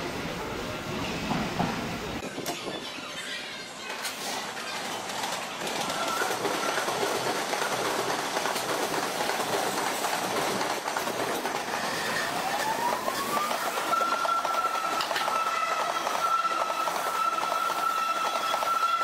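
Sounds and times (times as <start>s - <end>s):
train wheels clattering on rails: 4.9s - 19.0s.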